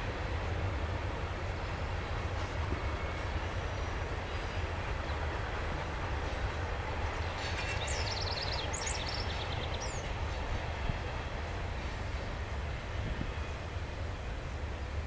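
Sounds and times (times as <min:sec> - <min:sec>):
freight train rolling past: 0:00.0 - 0:15.0
songbird chirping: 0:07.4 - 0:10.4.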